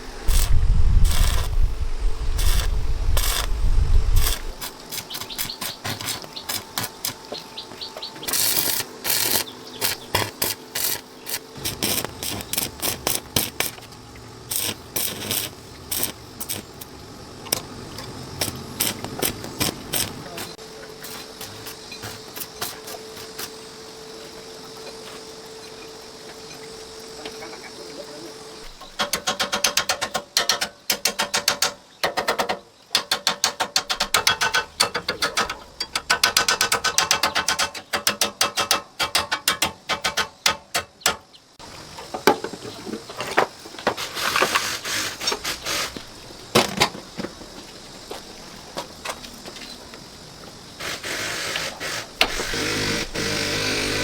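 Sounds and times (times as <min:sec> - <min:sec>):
rapid mechanical clicking: 0:08.2 - 0:20.6, 0:28.8 - 0:41.0.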